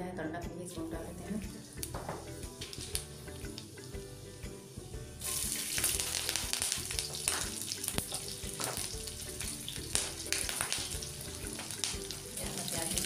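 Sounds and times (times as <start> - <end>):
garlic sizzling in hot oil: 1.1 - 13.0
sharp crackles: 5.7 - 8.7.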